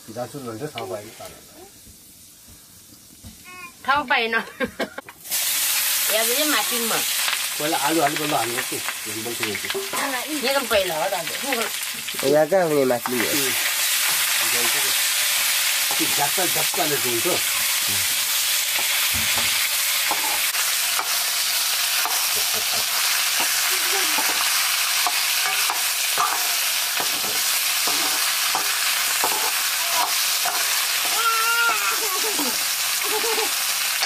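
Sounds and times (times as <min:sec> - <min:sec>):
vegetables sizzling in oil: 0:00.0 - 0:34.0
metal ladle scraping wok: 0:22.9 - 0:31.2.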